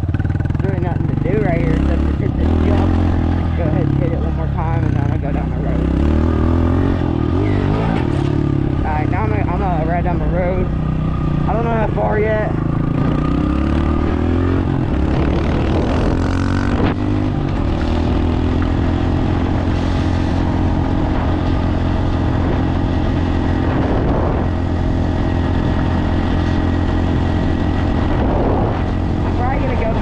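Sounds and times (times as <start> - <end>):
dirt bike engine accelerating: 0.0 - 30.0.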